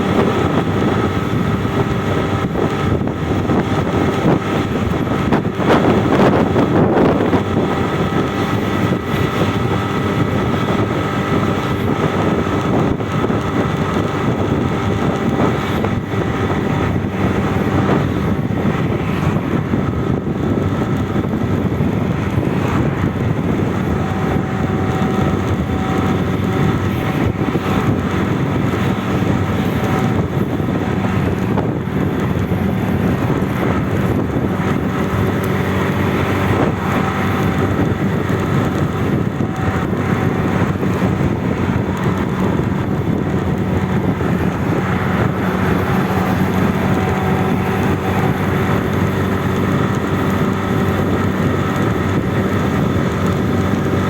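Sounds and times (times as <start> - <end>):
airliner engine drone: 0.0 - 54.0.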